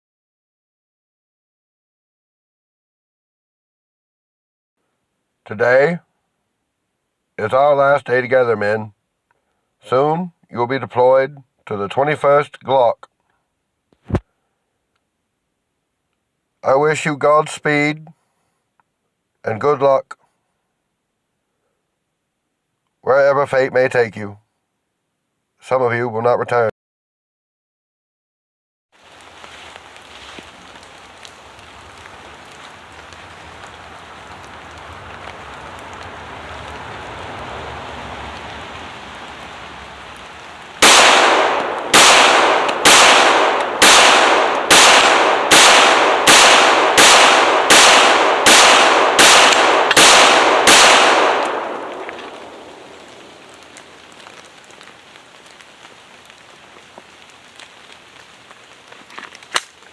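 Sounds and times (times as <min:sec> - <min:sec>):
pistol shots with echo: 0:40.8 - 0:52.9.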